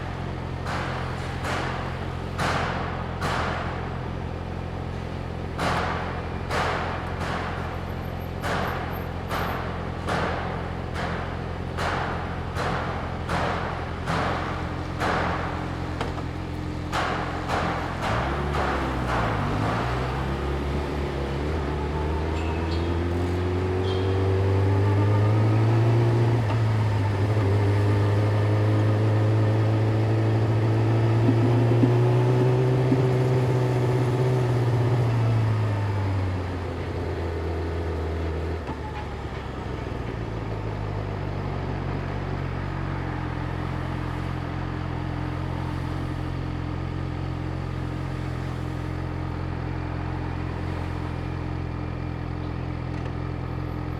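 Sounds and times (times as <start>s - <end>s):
motorcycle engine: 19.8s - 35.4s.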